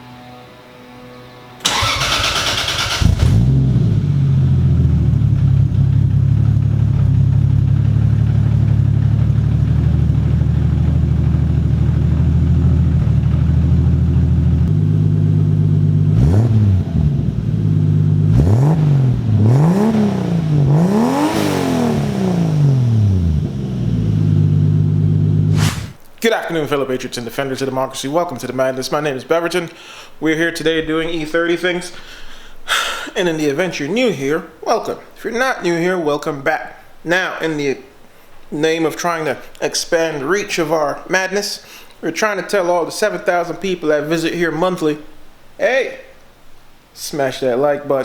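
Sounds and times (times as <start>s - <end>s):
engine starter cranking: 1.6s - 4.0s
car engine idling: 1.6s - 25.6s
engine revving: 1.6s - 26.0s.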